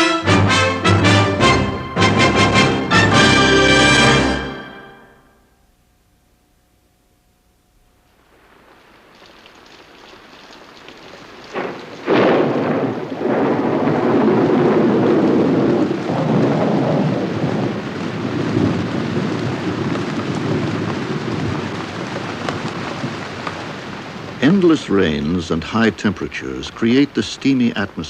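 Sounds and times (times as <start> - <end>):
heavy rain: 0.0 - 5.2, 7.8 - 28.0
rolling thunder: 10.0 - 25.4
sharp crack of thunder: 11.1 - 25.1.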